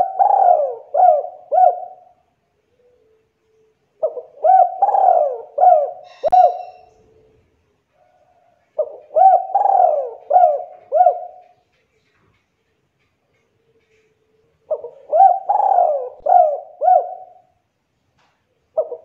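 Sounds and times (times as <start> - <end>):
dove cooing: 0.0 - 3.2, 4.0 - 7.4, 8.1 - 11.7, 13.8 - 17.6, 18.7 - 19.0.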